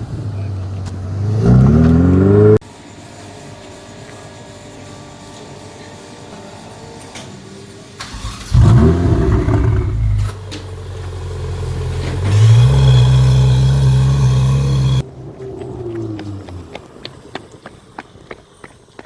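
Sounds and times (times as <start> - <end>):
car engine revving: 0.0 - 2.6, 8.1 - 15.0.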